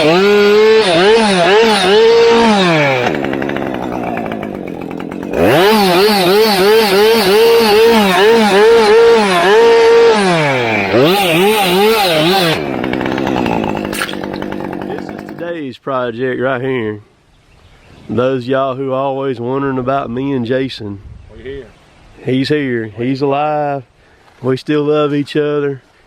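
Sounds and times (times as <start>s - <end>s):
chainsaw revving and idling: 0.0s - 15.6s.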